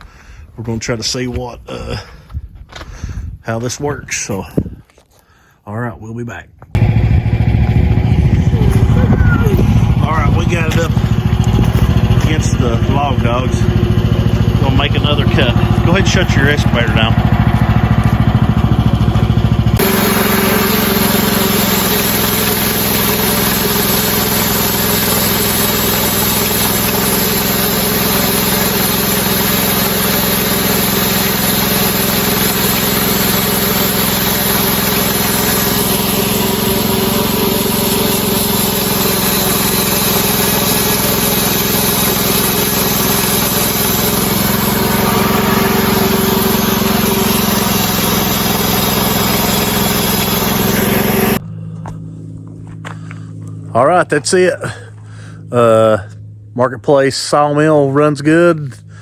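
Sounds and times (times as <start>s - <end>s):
sawmill engine running: 6.8s - 56.4s
band blade cutting log: 8.6s - 51.4s.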